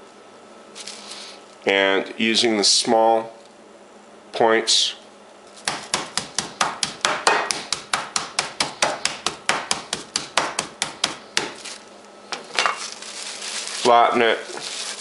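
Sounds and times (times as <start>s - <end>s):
mallet pounding meat on board: 5.7s - 11.6s.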